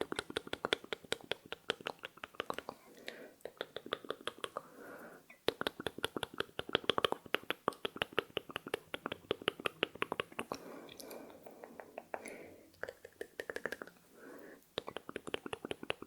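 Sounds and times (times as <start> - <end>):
fast asmr clicks: 0.0 - 4.7, 5.3 - 14.0, 14.6 - 16.0.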